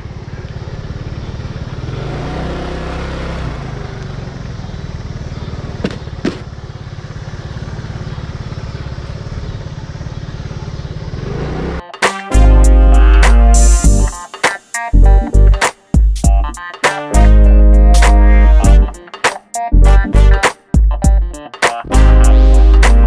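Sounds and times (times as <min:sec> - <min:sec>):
vehicle engine running: 0:00.0 - 0:14.2.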